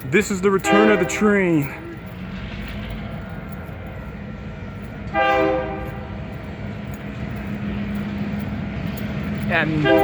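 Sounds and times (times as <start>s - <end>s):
train rumbling: 0.0s - 10.0s
train horn blast: 0.6s - 1.4s, 5.1s - 6.2s, 9.8s - 10.0s.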